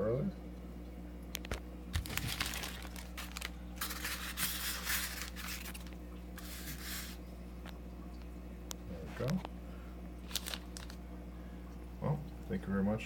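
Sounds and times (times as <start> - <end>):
packaging crinkling and rustling: 1.4 - 7.2, 10.2 - 11.0.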